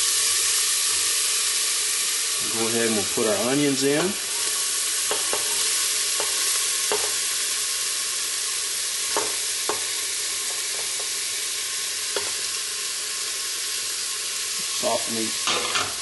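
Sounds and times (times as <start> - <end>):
oil sizzling in a pot: 0.0 - 16.0
onions scraped into pot: 4.1 - 7.3.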